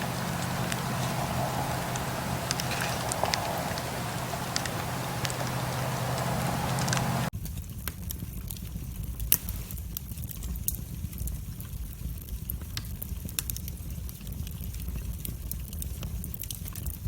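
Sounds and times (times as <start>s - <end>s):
wood fire crackling and popping: 0.0s - 11.6s, 15.5s - 16.9s
low rumble of flames: 0.0s - 16.9s.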